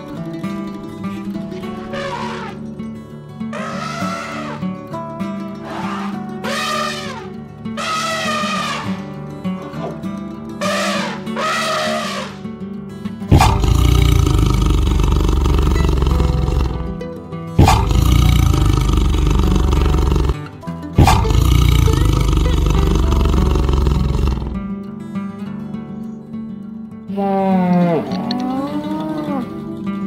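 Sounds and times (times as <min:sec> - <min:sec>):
big cat roaring: 0:01.6 - 0:02.6, 0:03.5 - 0:04.7, 0:05.6 - 0:09.0, 0:10.6 - 0:12.4, 0:13.3 - 0:17.0, 0:17.6 - 0:20.4, 0:21.0 - 0:24.7, 0:27.2 - 0:29.7.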